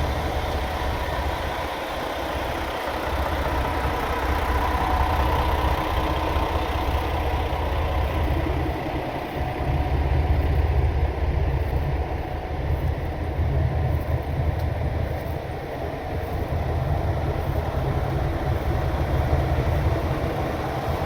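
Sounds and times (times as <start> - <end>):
diesel train engine humming: 0.0 - 21.0.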